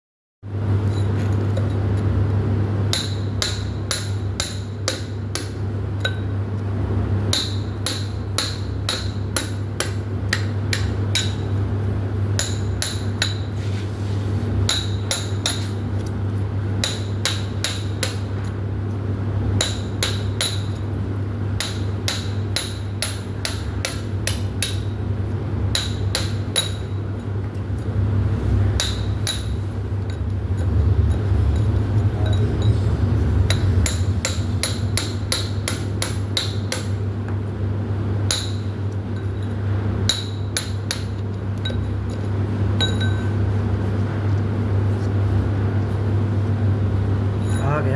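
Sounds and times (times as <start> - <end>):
hammer blows ringing on metal: 21.6 - 25.0, 28.8 - 29.7, 31.6 - 37.0.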